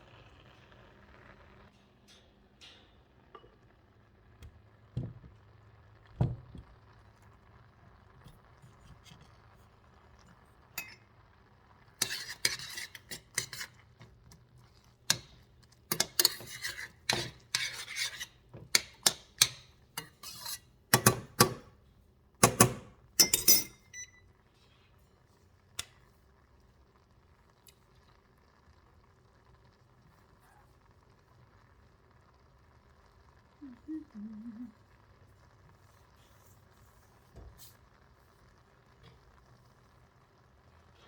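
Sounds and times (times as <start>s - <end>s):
utensils and dishes clinking: 15.9s - 21.7s, 22.4s - 24.1s.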